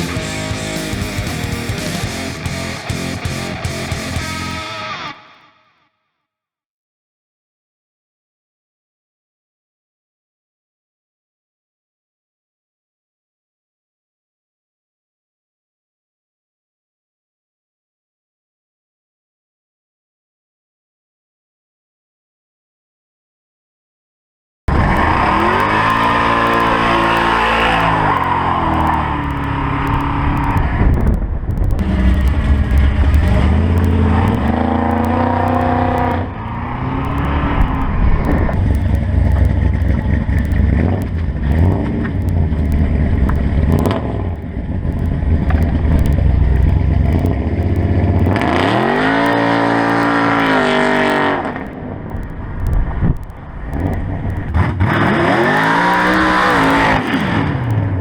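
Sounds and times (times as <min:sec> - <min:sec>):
car engine revving: 0:00.0 - 0:05.1, 0:24.7 - 0:58.0.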